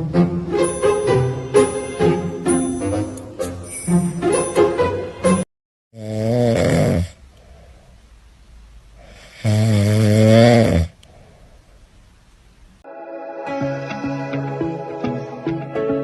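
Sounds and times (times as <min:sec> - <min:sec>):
loud snoring: 0:06.0 - 0:07.2, 0:09.0 - 0:11.0
faint breathing: 0:07.2 - 0:08.2, 0:08.9 - 0:09.6, 0:10.9 - 0:11.9.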